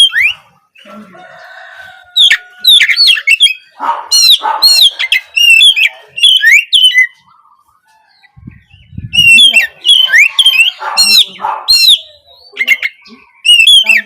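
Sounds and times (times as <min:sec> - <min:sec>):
bird singing whistled notes: 0:00.0 - 0:00.9, 0:02.3 - 0:07.3, 0:08.1 - 0:14.0.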